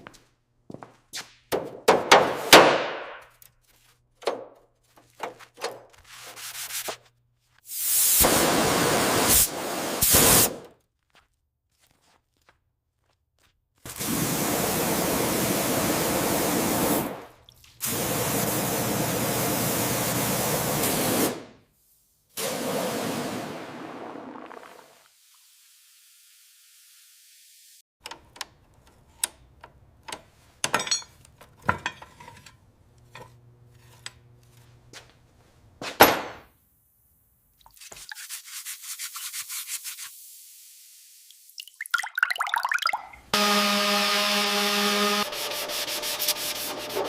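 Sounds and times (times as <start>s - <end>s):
tool tapping and knocking: 1.5s - 3.2s, 4.2s - 5.9s, 28.0s - 32.5s.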